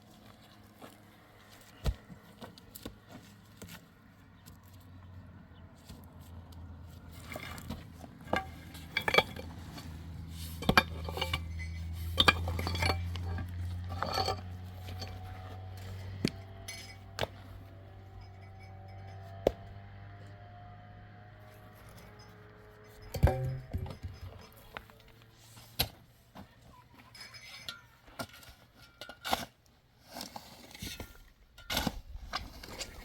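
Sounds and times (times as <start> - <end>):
hard objects clinking and knocking: 10.6 - 15.4, 22.0 - 25.2
steady low hum: 22.1 - 25.4.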